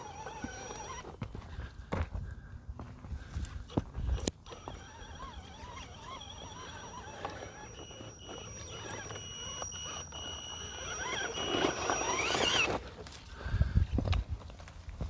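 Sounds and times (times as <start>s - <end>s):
rc car electric motor whining: 0.0s - 1.2s, 3.6s - 13.2s.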